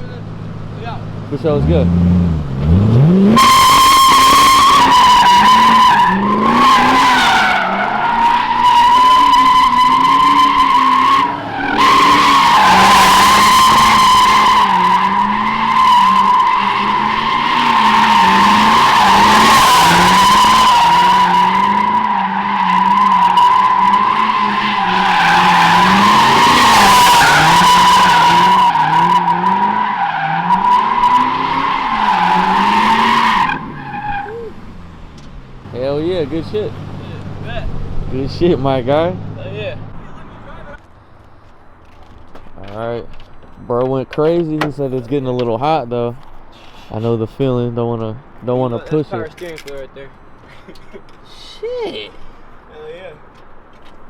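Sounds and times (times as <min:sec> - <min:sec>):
tyres screeching: 0:00.0 - 0:40.8
car engine revving hard: 0:01.3 - 0:40.5.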